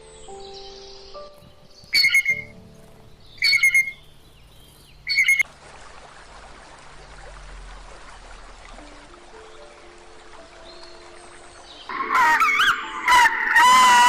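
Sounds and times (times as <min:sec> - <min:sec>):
harsh bird squawks: 0:01.9 - 0:02.5, 0:03.4 - 0:04.0, 0:05.1 - 0:05.4, 0:11.9 - 0:14.0.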